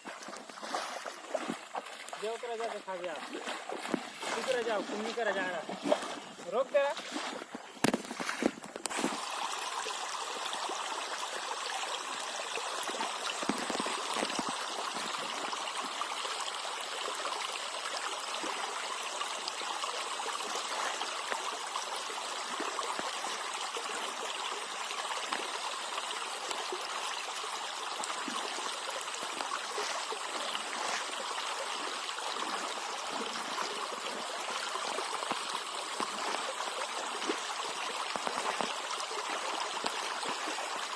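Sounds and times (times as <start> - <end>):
sharp knocks or splashes: 0.0 - 9.2, 13.3 - 15.1.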